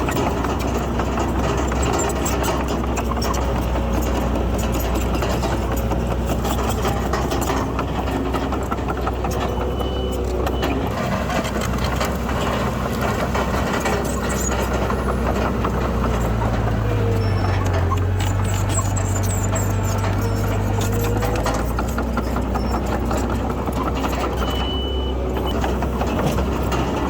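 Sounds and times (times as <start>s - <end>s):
diesel engine of heavy machinery: 0.0s - 27.0s
machinery rattling and clanking: 0.0s - 27.0s.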